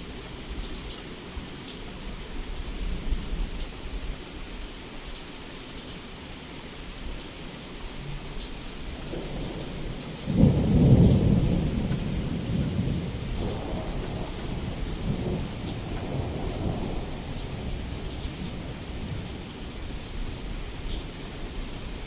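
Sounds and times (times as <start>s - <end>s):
heavy rain: 0.0s - 22.0s
thunderclap rumbling: 9.0s - 19.4s.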